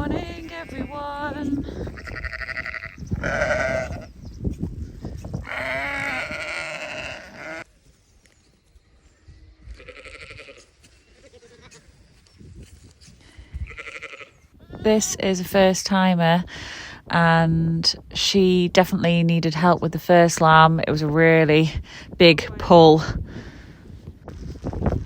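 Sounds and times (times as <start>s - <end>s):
sheep bleating: 0.0s - 4.1s, 5.4s - 7.7s, 9.7s - 11.8s, 13.6s - 15.2s.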